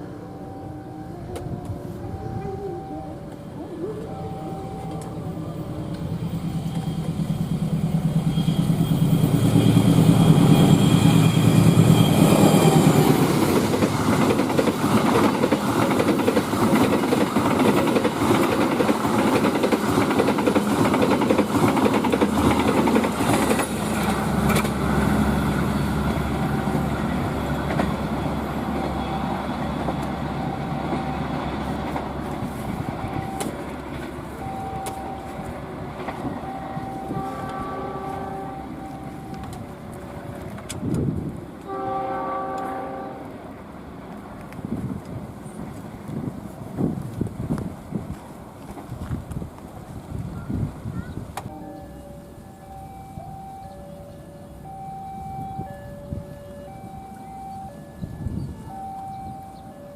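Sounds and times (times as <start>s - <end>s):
diesel locomotive engine: 0.0s - 59.9s
train wheels clattering on rails: 5.9s - 37.7s.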